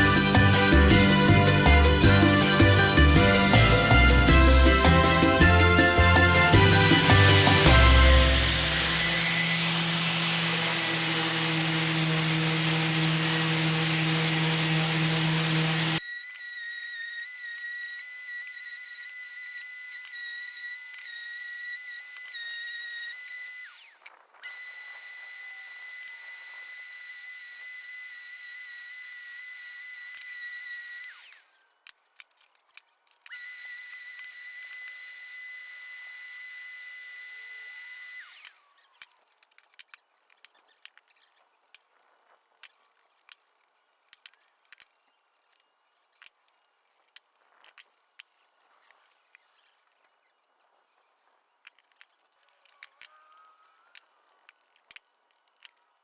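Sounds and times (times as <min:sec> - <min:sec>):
loud music: 0:00.0 - 0:09.4
power tool whining: 0:00.0 - 0:32.6, 0:33.2 - 0:39.8.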